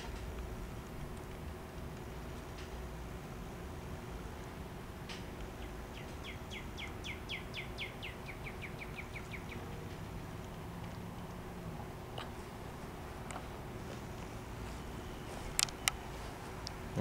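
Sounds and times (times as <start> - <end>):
low outdoor background noise: 0.0 - 17.0
songbird trilling: 5.6 - 9.8.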